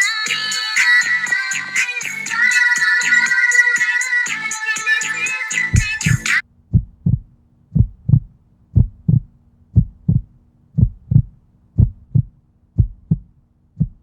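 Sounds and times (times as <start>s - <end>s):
heartbeat thumps: 5.7s - 14.0s.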